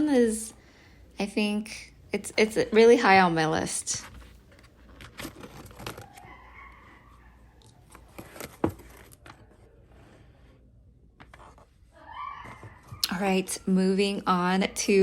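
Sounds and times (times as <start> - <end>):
paper pages rustling: 4.0 - 10.2.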